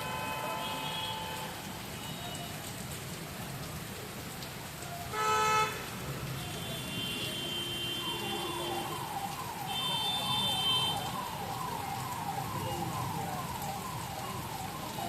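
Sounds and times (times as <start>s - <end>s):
vehicle horn: 0.0s - 2.2s, 5.1s - 5.8s, 6.4s - 8.7s
heavy rain hissing: 0.0s - 15.0s.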